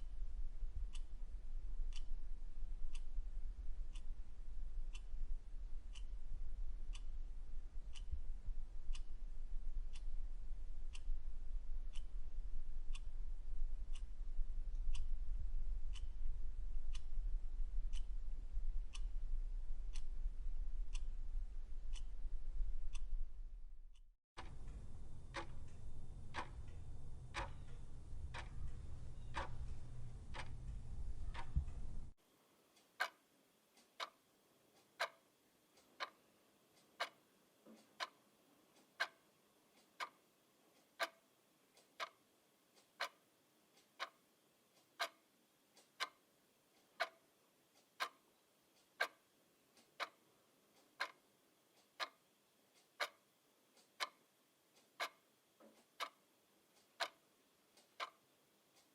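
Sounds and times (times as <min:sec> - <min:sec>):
clock ticking: 0:00.0 - 0:23.3, 0:23.9 - 0:32.2, 0:32.8 - 0:58.9
low hum: 0:00.0 - 0:32.2.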